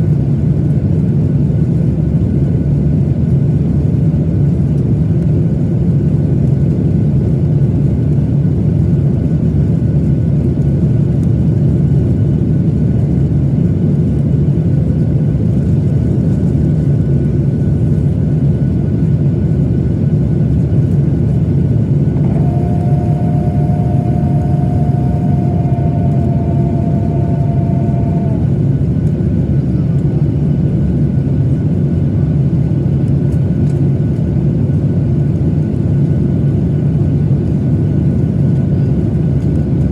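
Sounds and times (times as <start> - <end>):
aircraft cabin engine roar: 0.0 - 39.9
two-note tone: 22.2 - 28.6.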